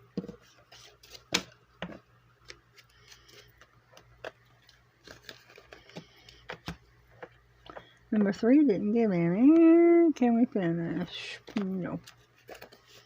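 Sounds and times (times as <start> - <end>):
hands handling paper: 0.3 - 7.9, 11.4 - 13.0.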